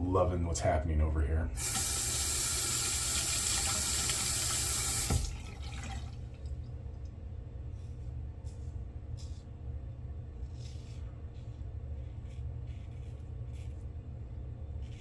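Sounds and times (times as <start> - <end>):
low steady hum: 0.0 - 15.0
water rushing into sink basin: 1.6 - 6.5.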